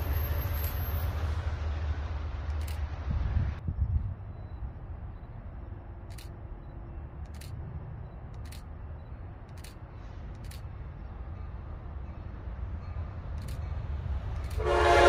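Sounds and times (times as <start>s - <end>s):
distant train rumble: 0.0s - 15.0s
faint sharp high ticks: 12.8s - 14.6s.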